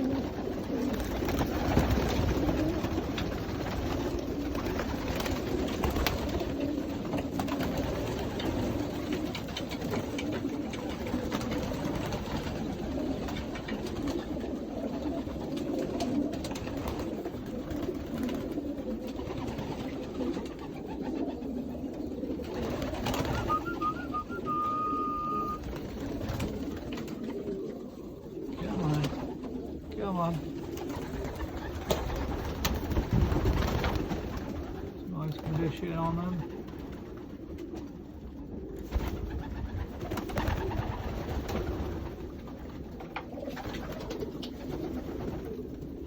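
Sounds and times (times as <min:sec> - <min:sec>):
pigeons cooing: 0:00.0 - 0:46.0
steady high whistle: 0:23.3 - 0:25.6
short high chirps: 0:23.5 - 0:25.6.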